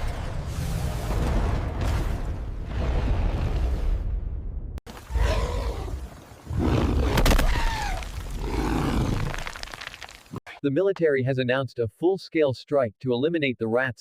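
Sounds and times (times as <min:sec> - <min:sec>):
monster roars: 0:05.1 - 0:09.4.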